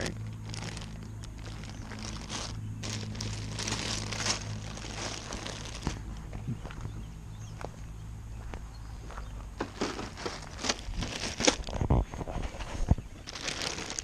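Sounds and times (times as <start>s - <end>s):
plastic bags crinkling: 0.0s - 6.1s, 9.6s - 11.9s, 13.2s - 14.0s
steady low hum: 0.0s - 14.0s.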